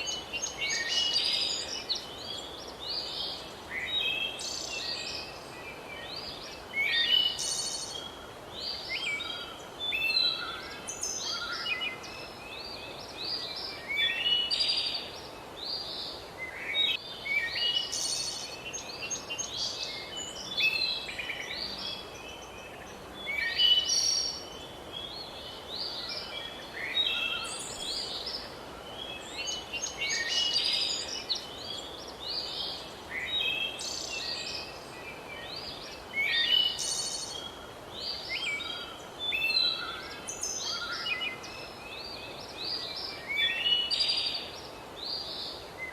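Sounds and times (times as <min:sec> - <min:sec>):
faint background hiss: 0:00.0 - 0:45.9.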